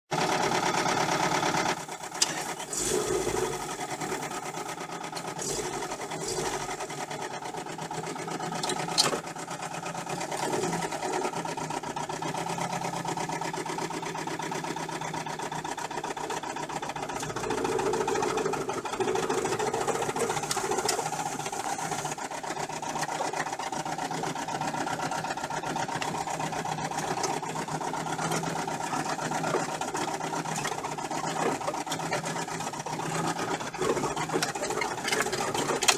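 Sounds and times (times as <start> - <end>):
petrol engine knocking: 0.1 - 35.9.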